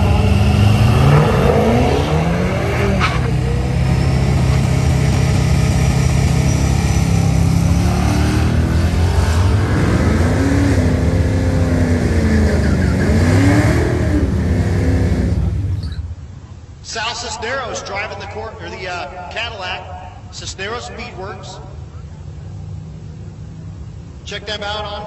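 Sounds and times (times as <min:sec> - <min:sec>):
car engine running and revving: 0:00.0 - 0:15.8.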